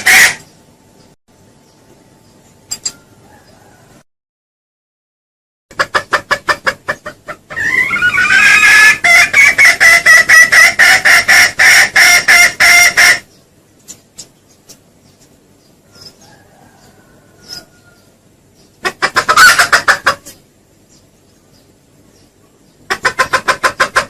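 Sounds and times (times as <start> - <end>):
junglefowl call clucks and cackle: 0.0 - 0.5, 5.7 - 13.3, 15.8 - 18.2, 18.8 - 20.4, 22.8 - 24.0.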